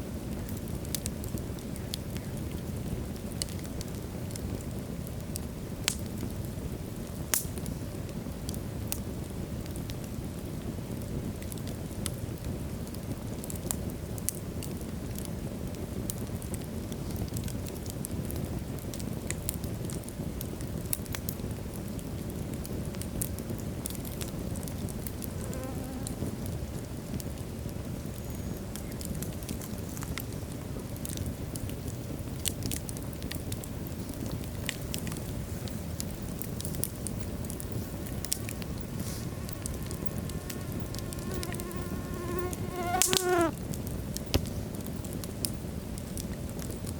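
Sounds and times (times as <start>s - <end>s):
fire rumbling: 0.0s - 25.4s, 26.1s - 46.9s
logs crackling and popping: 0.0s - 25.4s, 26.0s - 46.9s
faint whistle: 28.2s - 28.7s.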